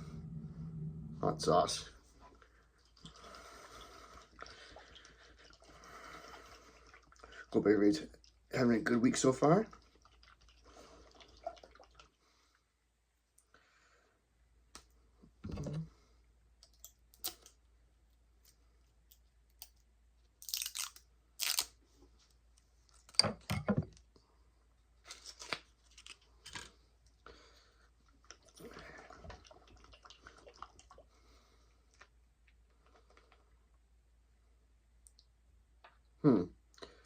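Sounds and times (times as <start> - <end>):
crinkling and rustling: 25.0 - 26.8.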